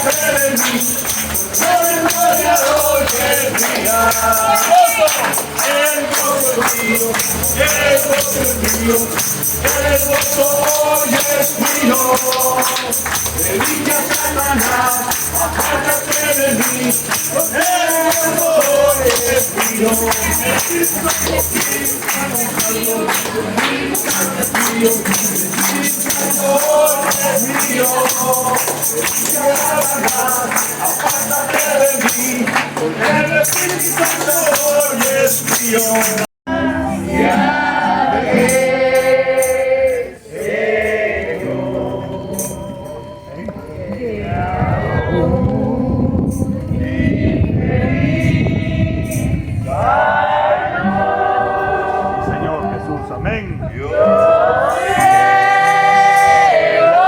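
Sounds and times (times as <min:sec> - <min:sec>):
tambourines jingling: 0:00.0 - 0:36.3, 0:38.5 - 0:41.4
group singing upbeat chorus: 0:00.0 - 0:53.2, 0:53.9 - 0:57.0.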